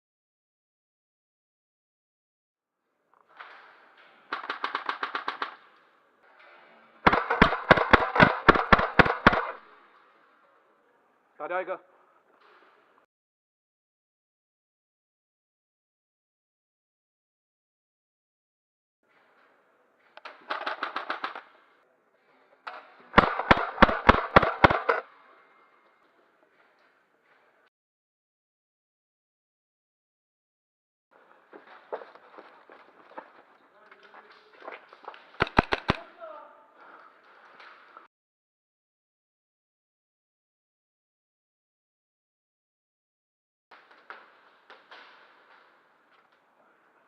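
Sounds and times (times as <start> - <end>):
airsoft guns firing: 4.2 - 5.8, 7.0 - 9.7, 20.2 - 21.6, 22.7 - 25.1, 35.4 - 36.2.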